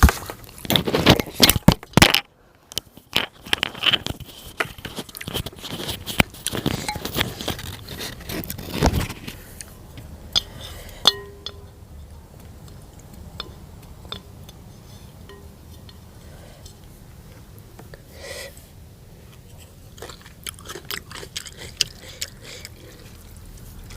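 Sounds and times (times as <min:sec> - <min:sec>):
utensils clinking on dishes: 0:10.4 - 0:11.8
ringing clink: 0:11.1 - 0:11.7.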